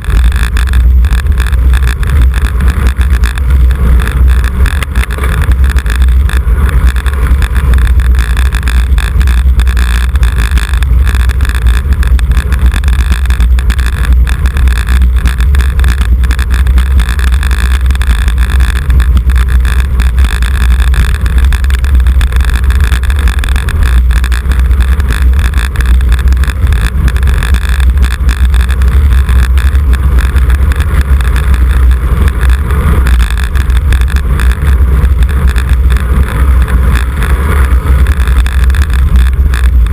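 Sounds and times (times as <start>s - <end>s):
road noise: 0.0s - 39.9s
wind buffeting microphone: 0.0s - 39.9s
wind rush: 0.0s - 39.9s.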